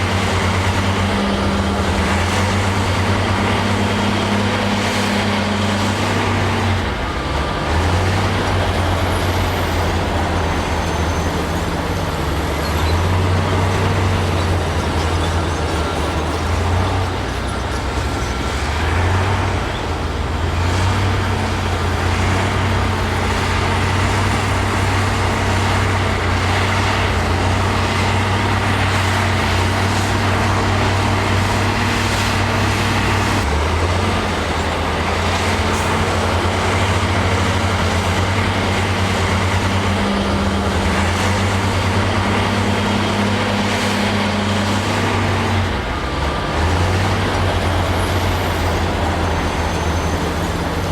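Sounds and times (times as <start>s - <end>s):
broad noisy rumble: 0.0s - 50.9s
diesel engine: 0.0s - 50.9s.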